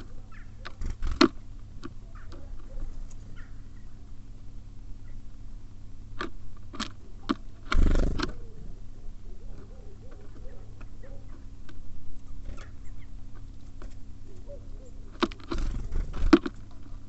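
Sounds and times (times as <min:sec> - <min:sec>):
birds pecking taps: 0:00.0 - 0:03.6, 0:09.5 - 0:17.0.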